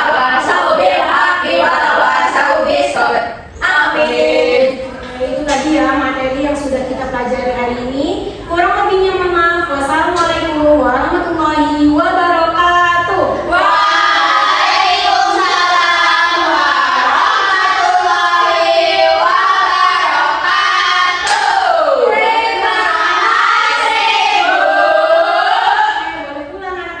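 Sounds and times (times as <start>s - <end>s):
high voices singing together: 0.0s - 5.6s, 13.0s - 26.6s.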